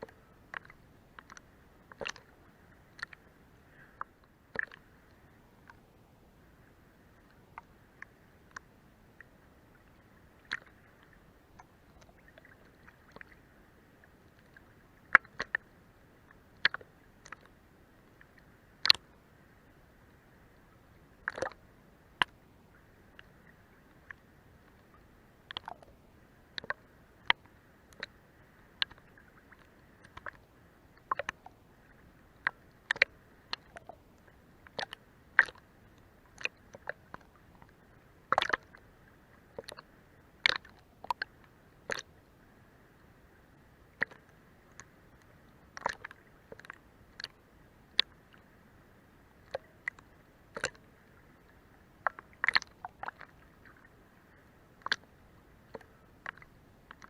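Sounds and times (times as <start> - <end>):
faint steady hiss: 0.0 - 57.0
water slapping under boat hull: 21.3 - 21.5, 38.3 - 38.8.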